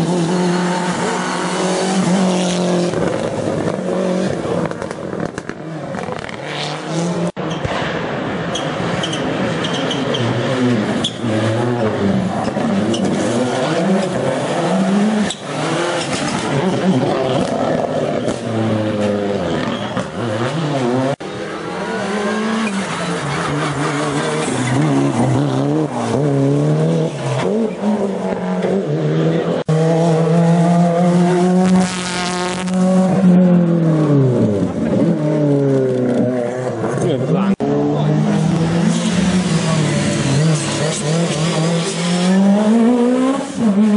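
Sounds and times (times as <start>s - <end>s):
rally car engines revving: 0.0s - 43.9s
tyre squeal: 8.5s - 11.6s, 14.8s - 20.5s.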